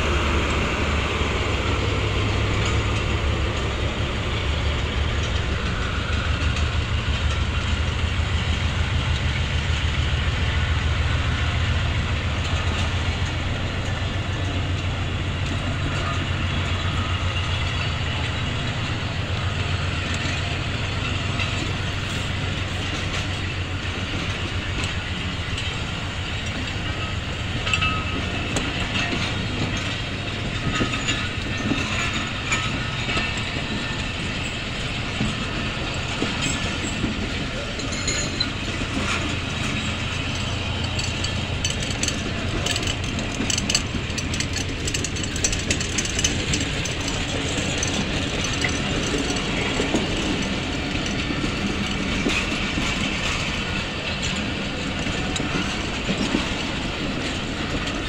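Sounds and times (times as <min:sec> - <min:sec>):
train wheels rumbling on rail: 0:00.0 - 0:58.0
sharp clicks and clanks: 0:27.6 - 0:58.0.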